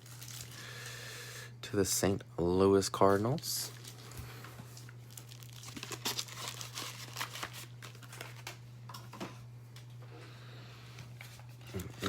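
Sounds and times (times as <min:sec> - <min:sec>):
plastic wrapping crinkling: 0:00.0 - 0:01.0, 0:03.6 - 0:08.6
low electrical hum: 0:00.0 - 0:12.0.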